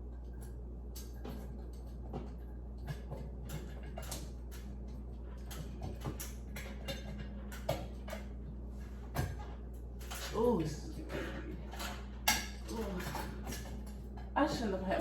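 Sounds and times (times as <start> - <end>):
small clicks taps and rustles: 0.0 - 10.4
steady low hum: 0.0 - 15.0.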